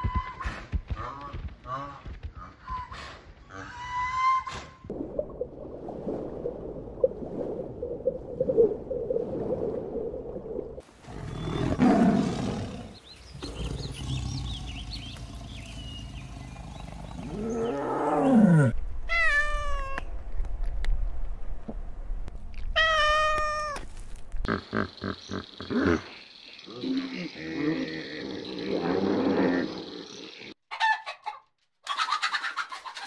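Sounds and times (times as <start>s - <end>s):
tiger growling: 11.0s - 18.8s.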